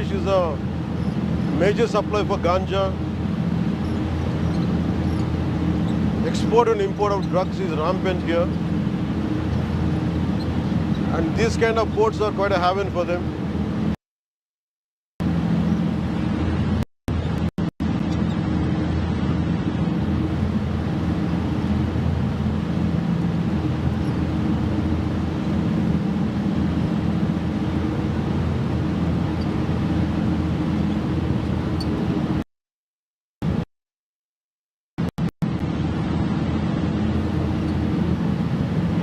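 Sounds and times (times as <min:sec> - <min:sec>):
rushing water noise: 0:00.0 - 0:13.9
boat engine humming: 0:00.0 - 0:14.0, 0:15.2 - 0:32.4, 0:35.4 - 0:39.0.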